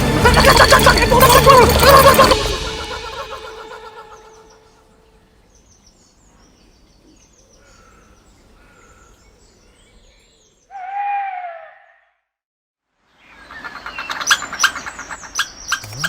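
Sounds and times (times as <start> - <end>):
high-pitched bird call: 0.2 - 5.0.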